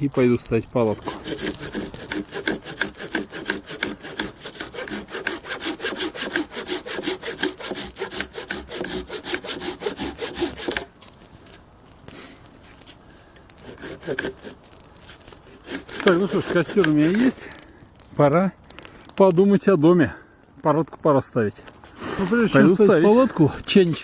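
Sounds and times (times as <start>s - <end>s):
hand saw cutting wood: 0.9s - 10.9s, 13.6s - 14.6s, 15.2s - 17.4s, 22.6s - 23.5s.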